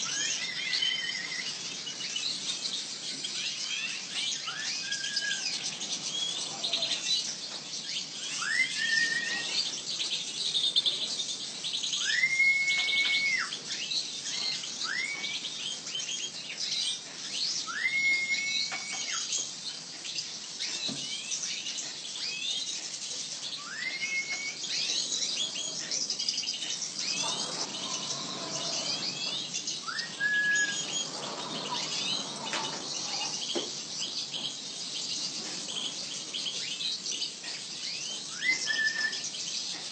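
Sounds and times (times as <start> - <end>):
small birds chirping: 0.0 - 39.9
rising whistled bird note: 8.3 - 9.6, 12.0 - 13.5, 14.8 - 15.4, 17.6 - 19.3, 23.6 - 25.0, 27.0 - 32.4, 38.3 - 39.3.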